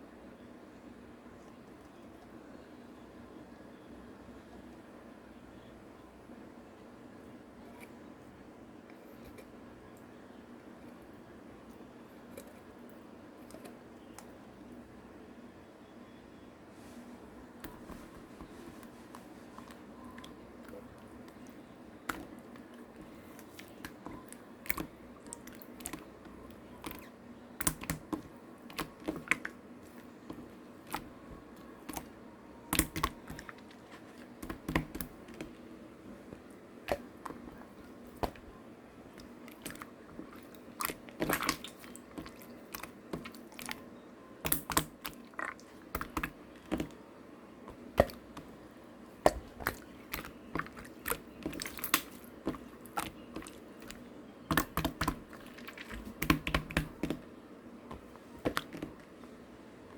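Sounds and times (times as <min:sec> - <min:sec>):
slime squelching sticky clicks: 0:20.1 - 0:26.1, 0:26.8 - 0:31.1, 0:32.7 - 0:35.6, 0:39.1 - 0:43.8, 0:44.4 - 0:47.0, 0:47.7 - 0:48.5, 0:49.2 - 0:57.2.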